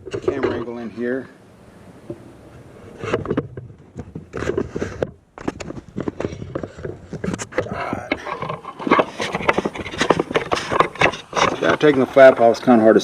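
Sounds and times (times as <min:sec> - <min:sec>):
camera handling knocks and rubbing: 0:02.0 - 0:12.1.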